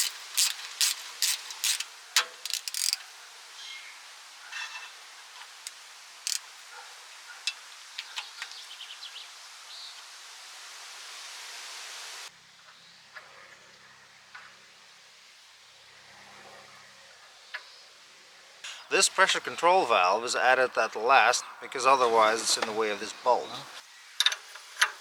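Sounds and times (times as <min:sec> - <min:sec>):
hand tool clicks: 0:00.0 - 0:03.0, 0:06.3 - 0:06.5
steady hiss: 0:00.0 - 0:12.6, 0:18.0 - 0:25.0.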